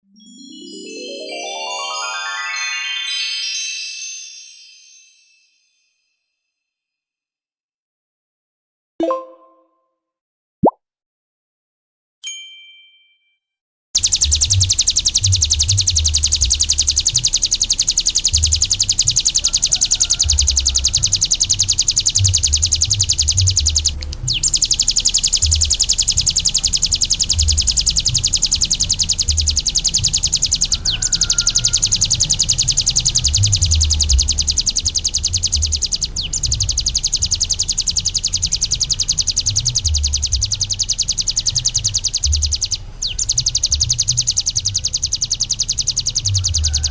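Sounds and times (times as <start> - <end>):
bird high-pitched trilling song: 0.3 - 4.0, 14.0 - 46.9
short chime ringing: 12.2 - 13.3.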